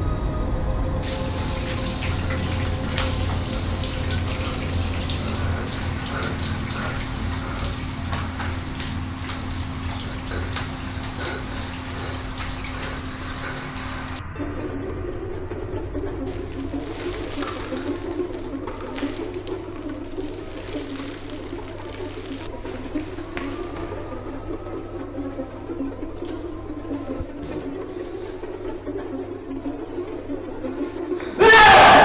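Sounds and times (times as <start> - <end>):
steady low hum: 0.0 - 31.1
shower spray splashing: 1.0 - 14.2, 16.3 - 23.2.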